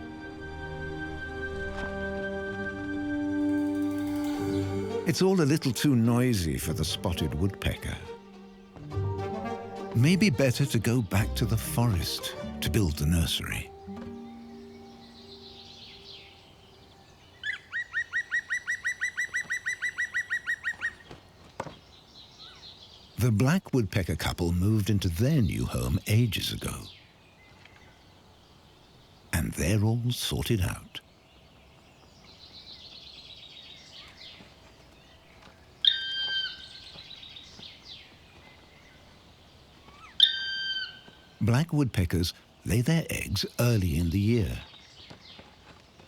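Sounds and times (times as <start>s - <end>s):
bird calling ringing notes: 0.0s - 21.2s, 24.8s - 45.8s
loud drawn-out bird call: 35.8s - 37.0s, 39.8s - 41.4s.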